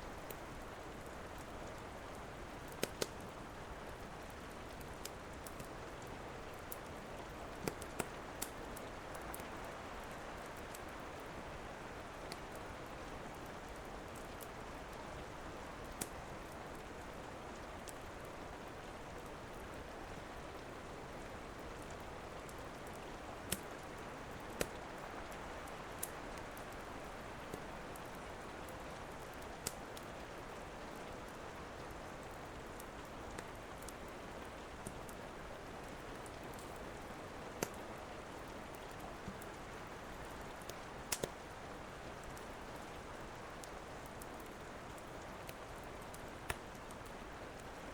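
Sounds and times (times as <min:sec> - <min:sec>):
wood fire crackling: 0:00.0 - 0:20.5, 0:21.1 - 0:47.9
rain: 0:00.0 - 0:47.9.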